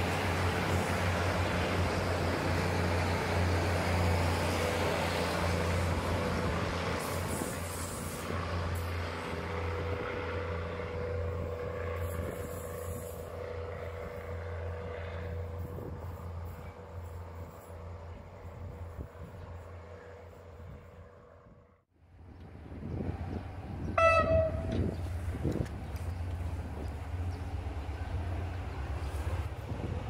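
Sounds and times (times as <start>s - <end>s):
train rumbling on track: 0.0s - 30.0s.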